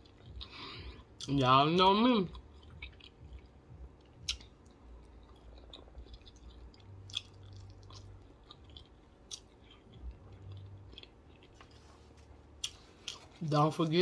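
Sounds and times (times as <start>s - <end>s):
person chewing food: 0.0s - 1.4s, 2.3s - 13.4s
sharp mouth clicks: 4.0s - 4.5s.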